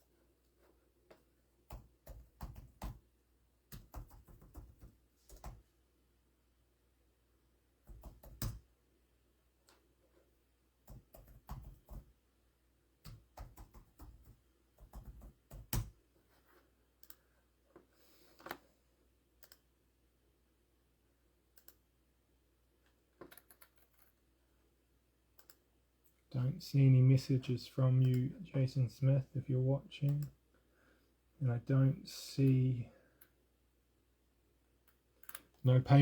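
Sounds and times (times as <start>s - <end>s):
mouse clicks: 17.0s - 17.2s, 21.6s - 21.8s, 25.4s - 25.6s.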